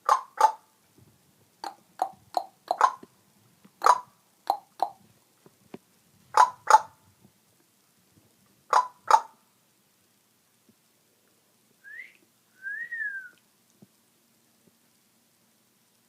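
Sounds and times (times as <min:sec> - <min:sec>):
parrot clucking: 0:00.0 - 0:00.6, 0:01.6 - 0:03.1, 0:03.8 - 0:05.0, 0:06.3 - 0:07.0, 0:08.7 - 0:09.4.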